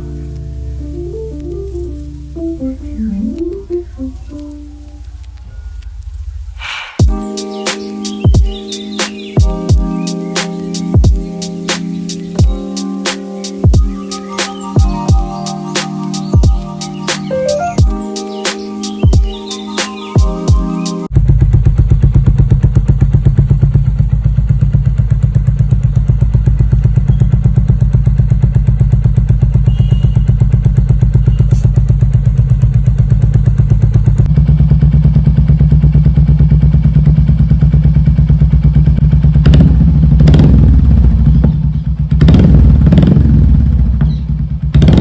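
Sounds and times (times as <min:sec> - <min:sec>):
motorcycle engine idling: 0:21.1 - 0:45.0.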